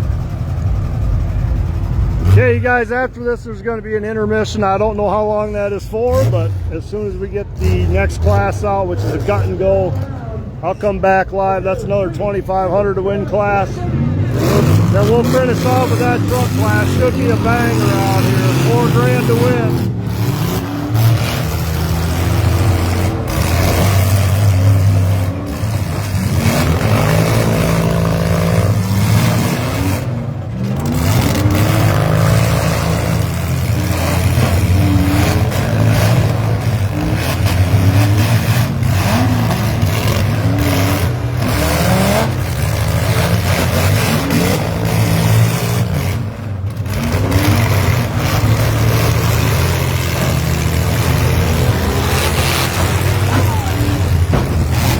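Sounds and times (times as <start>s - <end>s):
low engine drone: 0.0s - 2.4s, 13.5s - 40.8s, 46.8s - 54.9s
engines revving: 0.0s - 54.9s.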